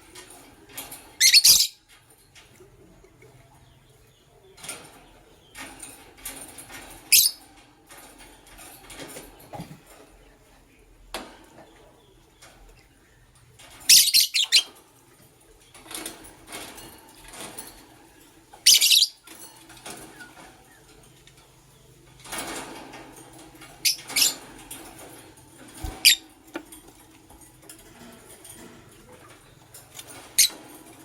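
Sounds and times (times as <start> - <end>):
quiet bird chatter: 0.0 - 31.0.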